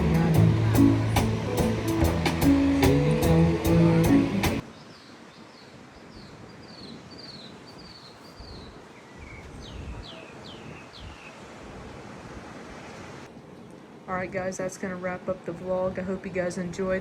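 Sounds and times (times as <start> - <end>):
outdoor background noise: 0.0 - 17.0
bird chirping: 4.6 - 11.4.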